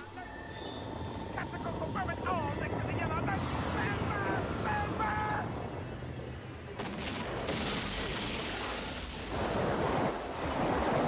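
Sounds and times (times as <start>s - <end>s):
explosions and blasts: 6.8s - 9.9s.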